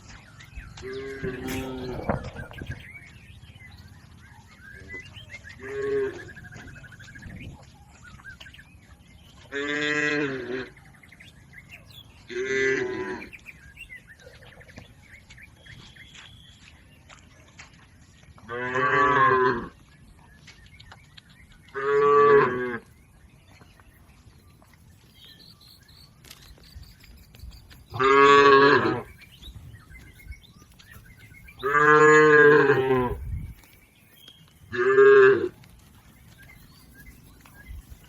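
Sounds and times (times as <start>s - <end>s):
cows mooing: 0.8s - 2.5s, 9.5s - 10.8s, 12.3s - 13.4s, 18.5s - 19.8s, 27.9s - 29.1s, 31.6s - 33.2s, 34.7s - 35.6s.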